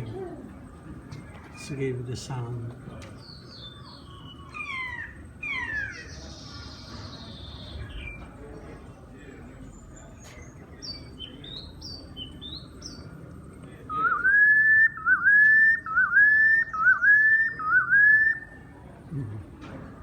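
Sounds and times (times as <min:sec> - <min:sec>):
faint high bird chirps: 0:03.2 - 0:08.3.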